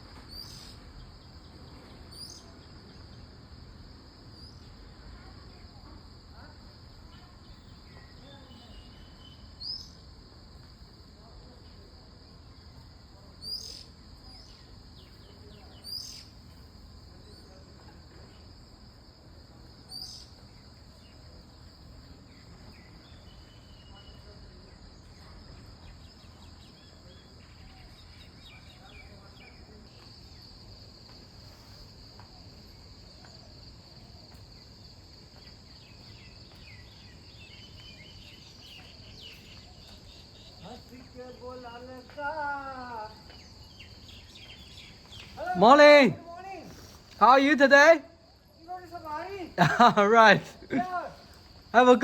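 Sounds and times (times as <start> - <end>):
insect chorus: 0.0 - 52.0
faint bird chirps: 0.1 - 3.3, 4.3 - 10.0, 12.5 - 16.6, 19.9 - 21.3, 22.0 - 30.4, 35.6 - 41.8.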